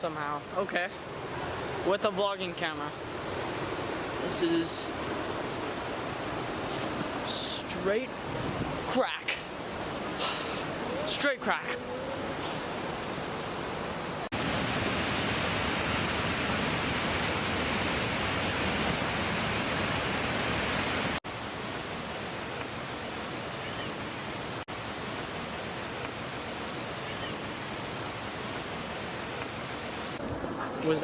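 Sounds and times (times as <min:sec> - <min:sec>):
waterfall rushing: 0:00.1 - 0:21.2.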